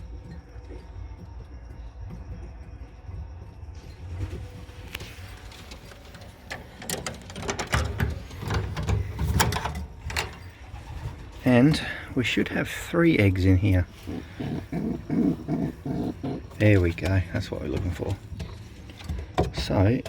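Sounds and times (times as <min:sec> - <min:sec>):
cage door sliding and rattling: 0:04.2 - 0:12.0.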